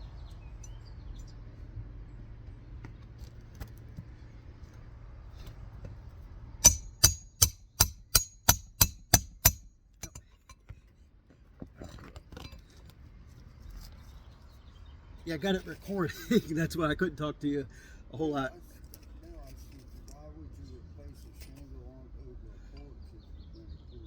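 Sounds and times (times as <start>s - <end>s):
hammer striking nail: 6.6s - 10.2s.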